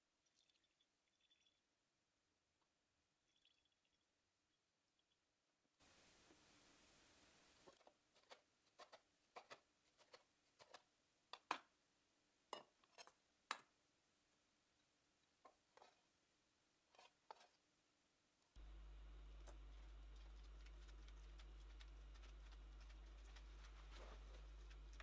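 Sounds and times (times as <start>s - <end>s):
steady hiss: 5.8s - 7.8s.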